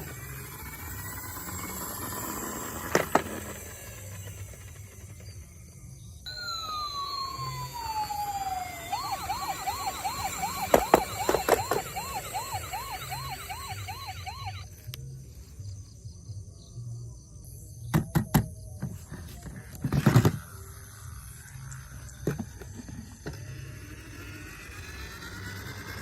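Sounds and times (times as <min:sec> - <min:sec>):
toy electronic siren wailing: 0:00.0 - 0:05.2, 0:06.3 - 0:15.1, 0:20.6 - 0:26.0.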